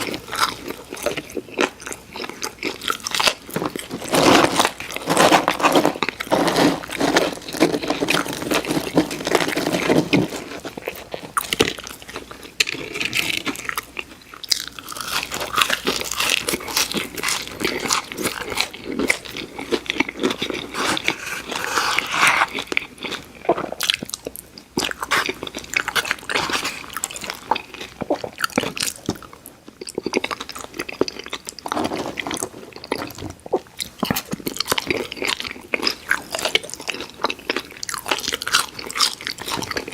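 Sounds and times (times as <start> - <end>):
crispy food crackling: 0.0 - 39.9
crunching and chewing: 0.0 - 39.9.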